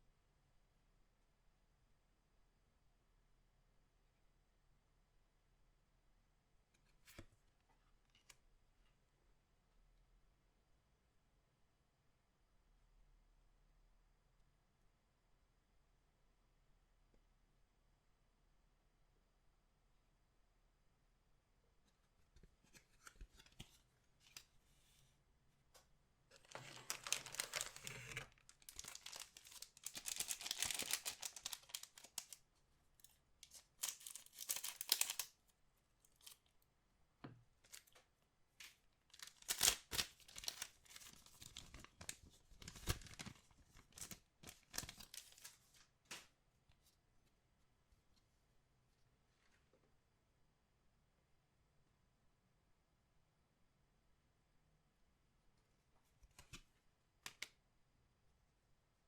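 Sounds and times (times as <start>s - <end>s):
wrappers tearing and crinkling: 26.4s - 32.4s, 33.4s - 35.3s, 39.1s - 45.5s.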